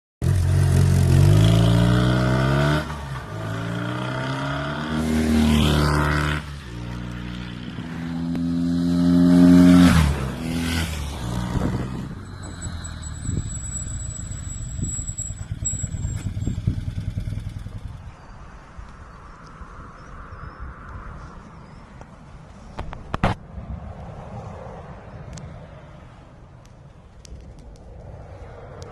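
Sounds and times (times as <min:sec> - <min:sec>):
motorcycle engine accelerating: 0:00.2 - 0:18.4.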